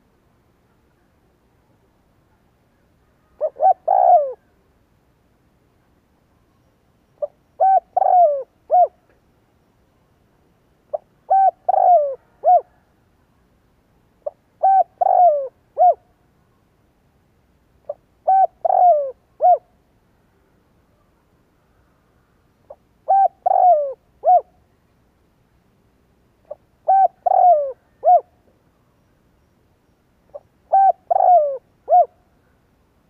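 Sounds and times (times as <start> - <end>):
dove cooing: 3.1 - 4.5, 7.2 - 9.0, 10.9 - 12.9, 14.2 - 16.1, 17.9 - 19.7, 22.7 - 24.6, 26.5 - 28.4, 30.3 - 32.2.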